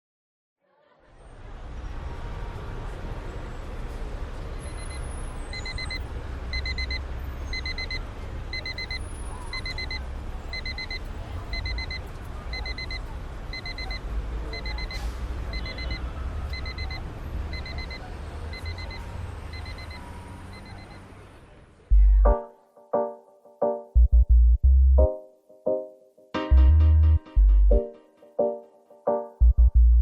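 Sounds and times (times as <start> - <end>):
electronic alarm beeping: 4.7 - 21.0
steady low rumble: 21.9 - 22.4, 29.4 - 30.0.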